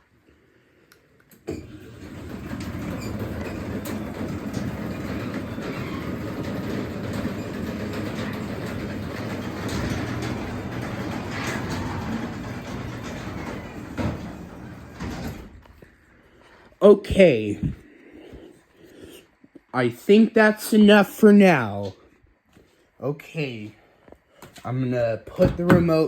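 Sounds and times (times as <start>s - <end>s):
garage door opener rumbling: 1.4s - 16.1s.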